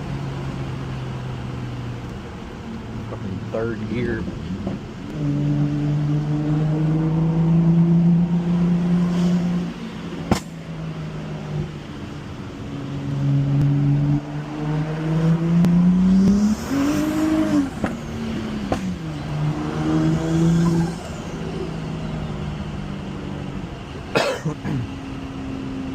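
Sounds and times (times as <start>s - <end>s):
car engine revving hard: 3.2s - 11.8s, 12.9s - 23.0s
exhaust crack: 10.2s - 10.8s, 15.4s - 21.7s.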